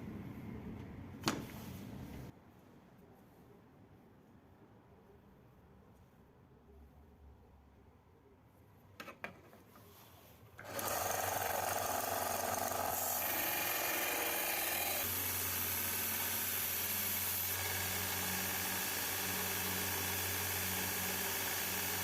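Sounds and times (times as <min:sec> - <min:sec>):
electric power tool running: 0:10.6 - 0:22.0.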